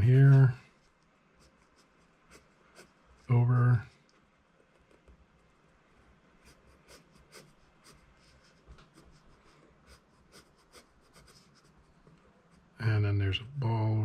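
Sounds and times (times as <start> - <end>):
pencil scratching on paper: 0.2 - 3.7, 6.4 - 12.8.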